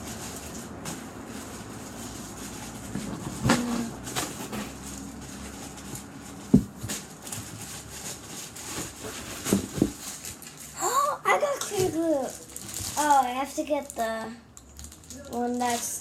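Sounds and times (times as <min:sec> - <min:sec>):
objects knocking and shuffling: 0:00.0 - 0:10.7, 0:11.5 - 0:13.2.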